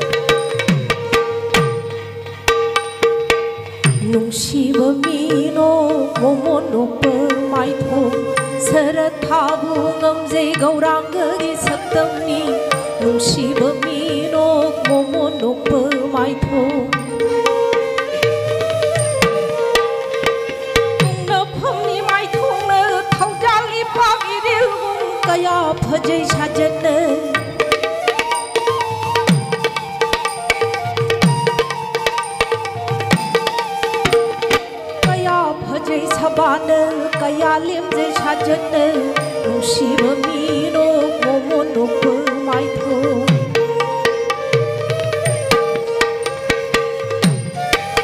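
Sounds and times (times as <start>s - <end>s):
flute melody: 0.0s - 3.3s, 5.7s - 48.0s
hand drum beating: 0.0s - 48.0s
violin: 0.0s - 48.0s
person singing: 35.1s - 43.4s.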